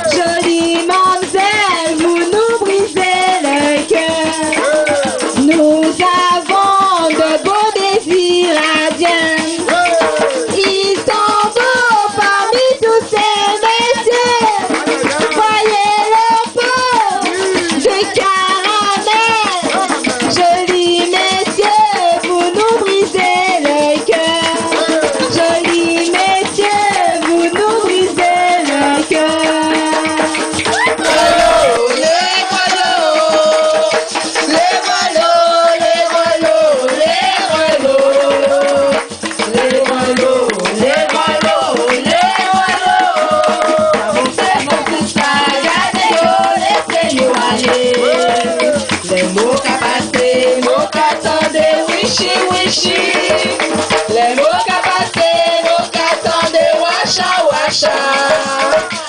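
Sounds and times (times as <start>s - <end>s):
shaken rattle: 0.0s - 59.0s
voices singing: 30.7s - 59.0s.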